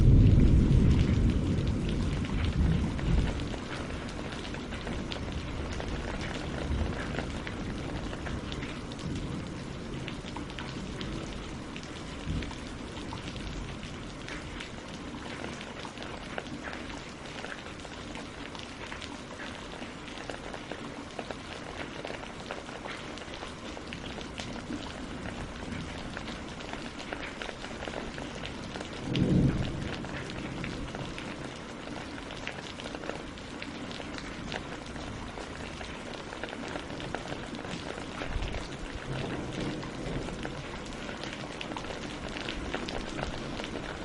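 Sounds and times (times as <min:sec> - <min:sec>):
thunder rumble: 0:00.0 - 0:16.7, 0:27.9 - 0:32.1, 0:37.1 - 0:44.0
rain on leaves and water: 0:00.0 - 0:44.0.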